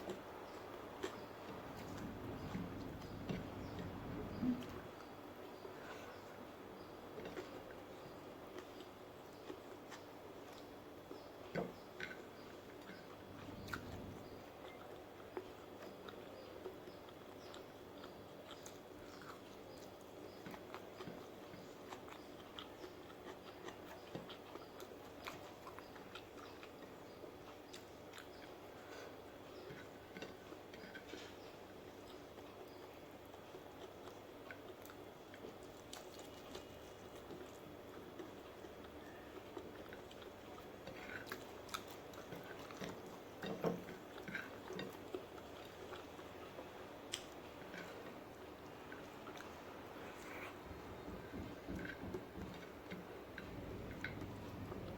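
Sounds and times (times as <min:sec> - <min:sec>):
person chewing food: 0:00.0 - 0:54.9.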